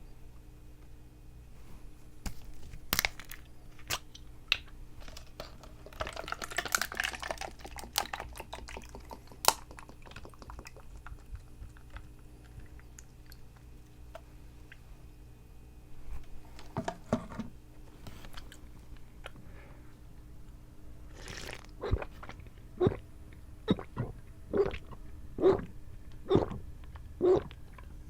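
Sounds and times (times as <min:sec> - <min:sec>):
liquid sloshing: 0:05.0 - 0:13.7, 0:21.1 - 0:23.0.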